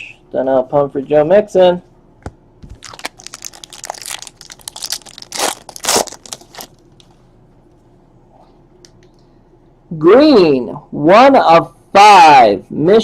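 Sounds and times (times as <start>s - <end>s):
wrapper crinkling and tearing: 2.7s - 7.1s.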